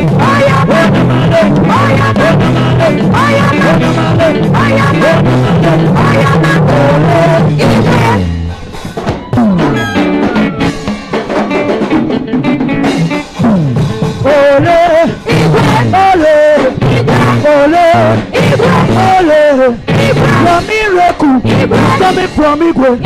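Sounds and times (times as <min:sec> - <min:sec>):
sliding bass line: 0:00.0 - 0:08.7, 0:09.3 - 0:20.7, 0:21.4 - 0:22.6
gospel band playing: 0:00.0 - 0:23.0
lead singer holding wavering notes: 0:09.5 - 0:10.9.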